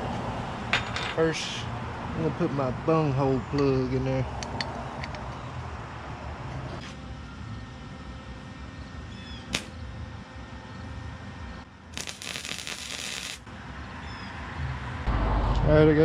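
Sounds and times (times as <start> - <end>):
welder crackling hiss: 9.5 - 9.7, 12.0 - 13.5.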